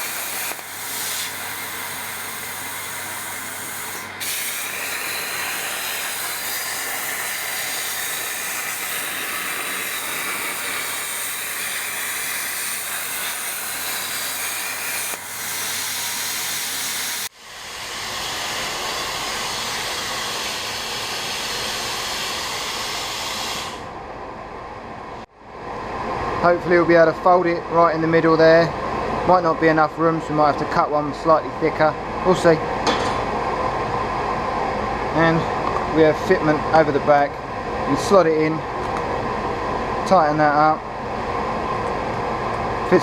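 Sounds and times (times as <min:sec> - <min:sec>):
plasma cutter torch hissing: 0:00.0 - 0:23.9
fume extraction rushing: 0:00.0 - 0:24.0.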